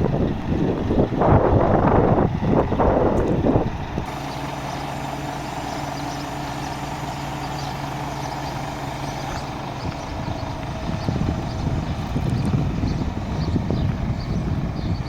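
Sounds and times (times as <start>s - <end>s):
truck diesel engine running: 0.0s - 15.0s.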